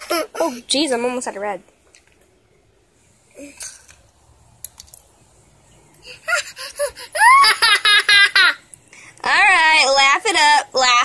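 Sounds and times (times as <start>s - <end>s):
child laughing: 0.0s - 0.6s, 6.0s - 8.6s.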